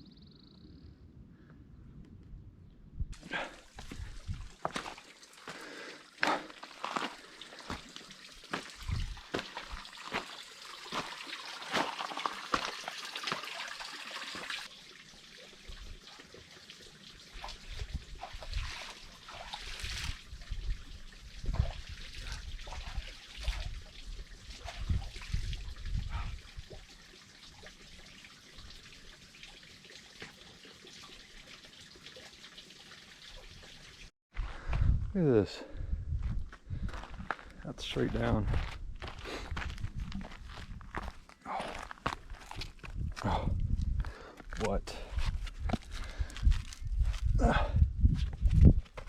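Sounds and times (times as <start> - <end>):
footsteps crunching on gravel: 3.8 - 5.6, 6.2 - 10.3, 10.9 - 12.8, 36.2 - 43.4, 44.0 - 47.3.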